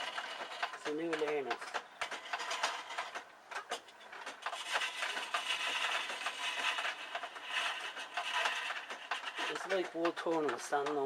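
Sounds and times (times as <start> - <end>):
treadle mechanism clicks and knocks: 0.0 - 11.0
lathe tool cutting wood: 4.5 - 11.0.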